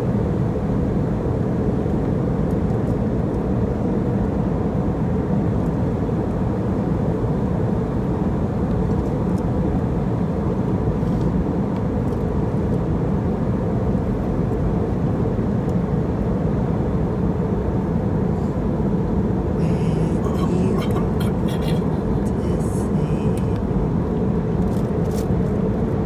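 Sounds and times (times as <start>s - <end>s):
airliner engine and airflow rumble: 16.0s - 26.0s
faint constant hum: 19.4s - 26.0s.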